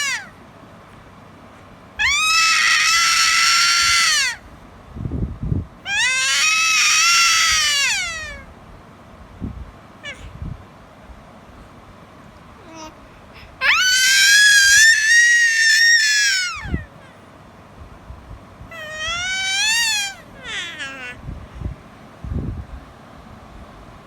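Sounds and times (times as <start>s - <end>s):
high-pitched vocal squeals: 0.0s - 0.3s, 2.0s - 4.5s, 5.9s - 8.5s, 10.0s - 10.4s, 13.6s - 17.0s, 18.7s - 21.2s.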